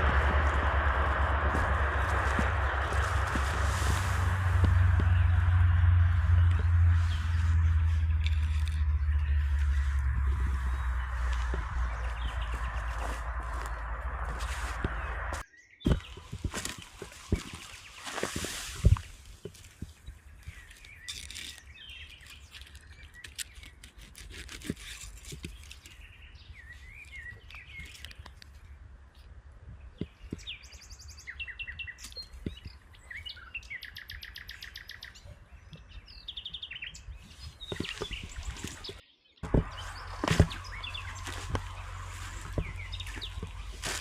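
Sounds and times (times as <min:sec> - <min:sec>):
steady low rumble: 0:00.0 - 0:20.7, 0:36.9 - 0:44.0
songbirds chirping and trilling: 0:00.0 - 0:44.0.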